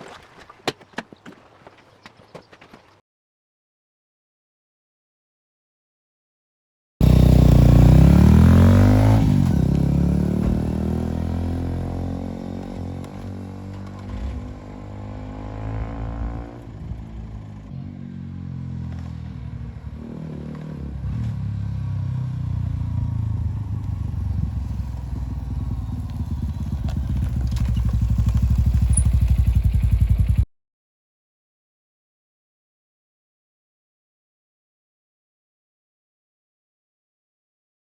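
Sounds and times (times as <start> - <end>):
motorcycle engine revving: 7.0 - 30.4.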